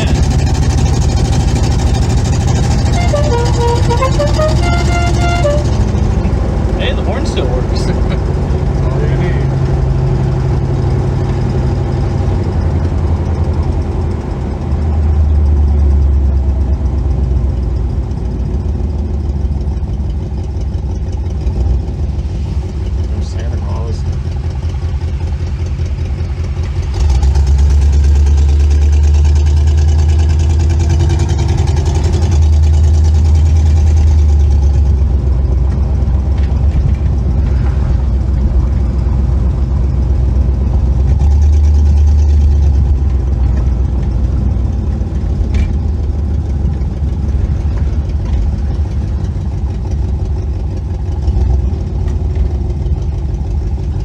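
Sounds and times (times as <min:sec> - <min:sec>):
car engine running: 0:00.0 - 0:54.0.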